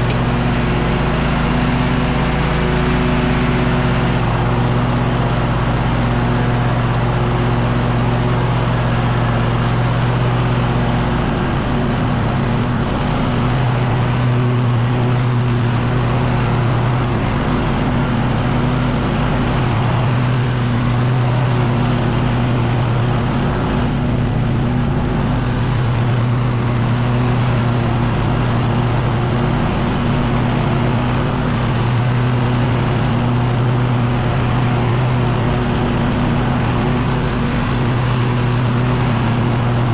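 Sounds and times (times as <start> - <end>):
small gas engine running: 0.0 - 39.9
rushing noise: 11.1 - 39.9.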